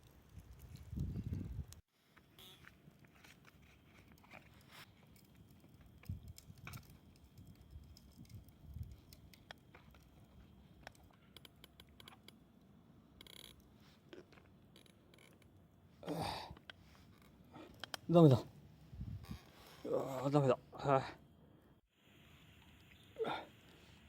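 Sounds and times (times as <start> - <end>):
faint ticks and clicks: 0.0 - 15.6.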